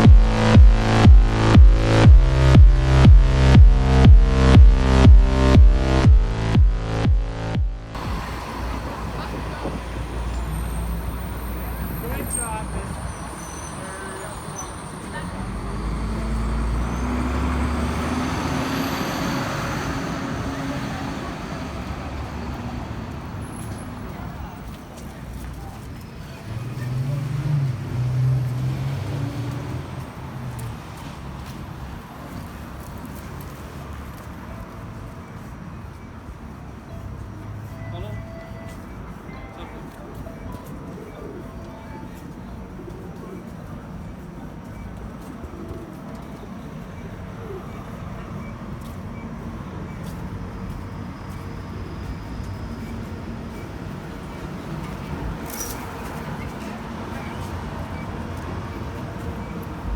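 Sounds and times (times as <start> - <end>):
vehicle engine hum: 0.0 - 35.1
street traffic: 0.0 - 59.9.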